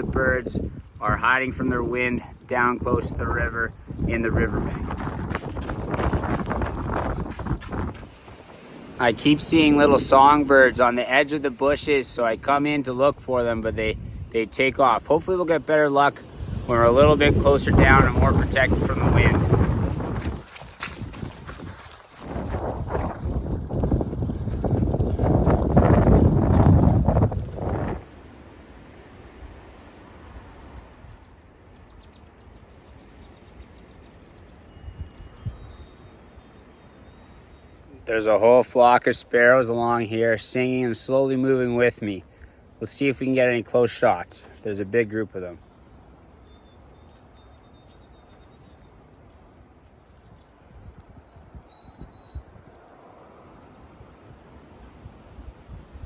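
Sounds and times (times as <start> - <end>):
low wind rumble: 0.0 - 33.0, 48.7 - 56.0
sparrows chirping: 27.0 - 55.8.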